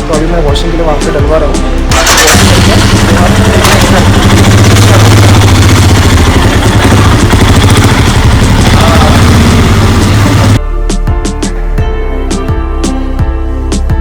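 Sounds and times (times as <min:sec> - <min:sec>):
music: 0:00.0 - 0:14.0
motorcycle engine idling: 0:01.9 - 0:10.6.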